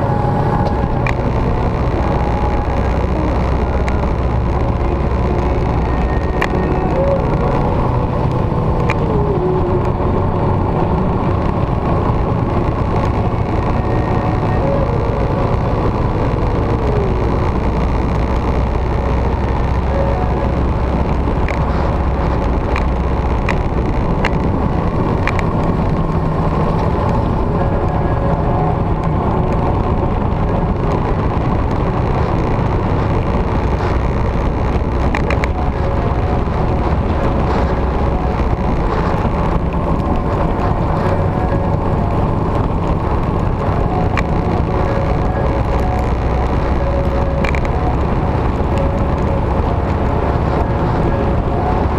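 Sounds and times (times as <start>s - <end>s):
motorcycle engine drone: 0.0s - 51.9s
wind rush: 0.0s - 51.9s.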